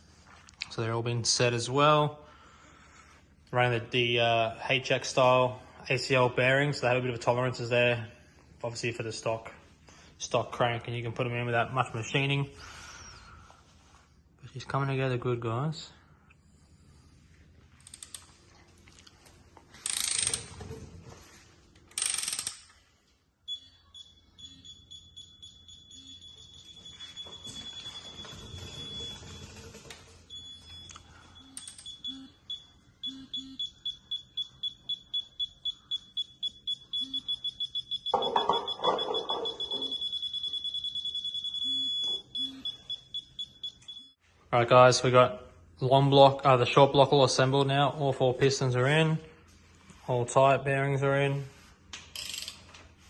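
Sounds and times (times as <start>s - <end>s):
high electronic beeping: 30.3s - 44.2s.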